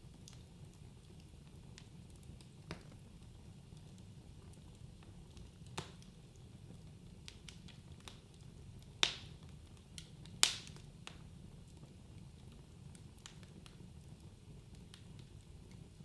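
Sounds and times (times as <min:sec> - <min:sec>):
wood fire crackling: 0:00.0 - 0:16.0
fire pops: 0:00.2 - 0:06.5, 0:07.2 - 0:11.9.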